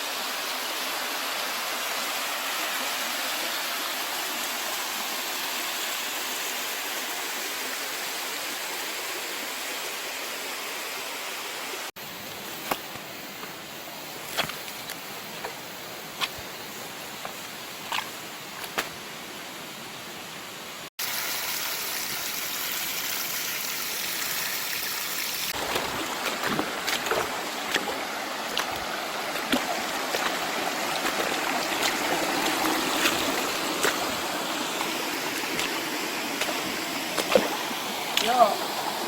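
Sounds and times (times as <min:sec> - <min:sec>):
water running over rocks: 0:00.0 - 0:10.5, 0:11.4 - 0:20.0, 0:20.9 - 0:39.0
small splashes: 0:25.5 - 0:38.5.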